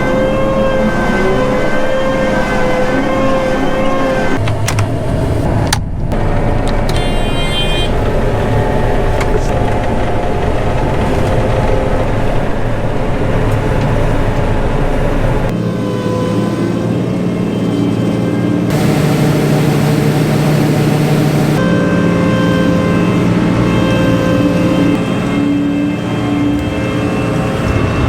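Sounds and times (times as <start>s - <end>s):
combine harvester running: 0.0s - 28.0s.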